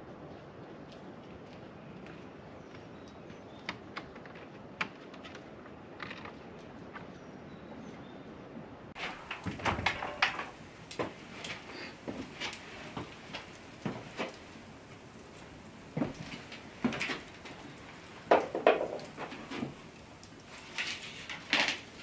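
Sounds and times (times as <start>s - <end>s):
objects knocking and clicking: 9.0s - 14.5s, 16.0s - 22.0s.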